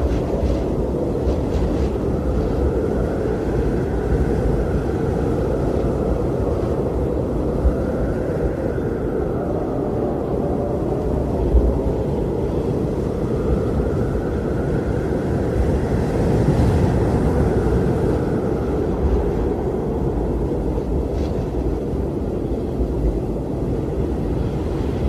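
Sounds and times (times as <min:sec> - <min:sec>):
strong wind rushing: 0:00.0 - 0:25.0
wind howling: 0:00.0 - 0:25.0.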